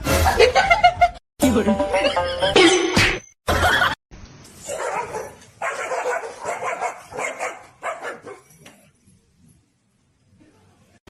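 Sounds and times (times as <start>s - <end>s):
dog barking and yipping: 4.6s - 8.7s.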